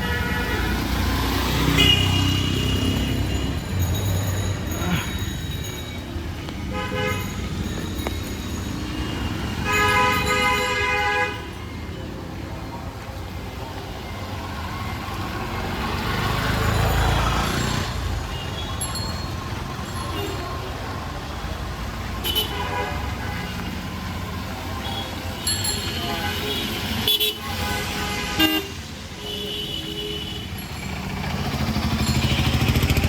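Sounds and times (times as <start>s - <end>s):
vehicle horns: 0.0s - 3.6s, 6.6s - 7.6s, 8.9s - 12.0s, 22.2s - 24.0s, 24.6s - 33.0s
engines rumbling: 0.0s - 33.0s
vehicle passing: 30.6s - 33.0s.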